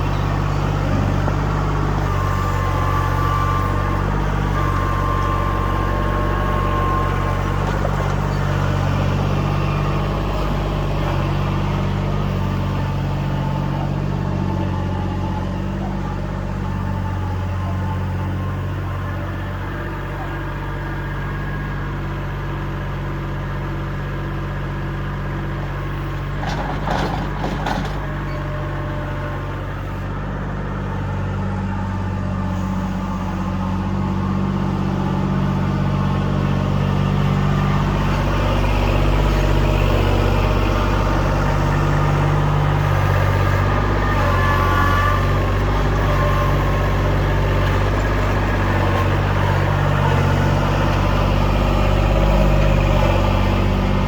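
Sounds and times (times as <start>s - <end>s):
diesel engine running: 0.0s - 54.0s
brief clatter: 26.4s - 28.2s.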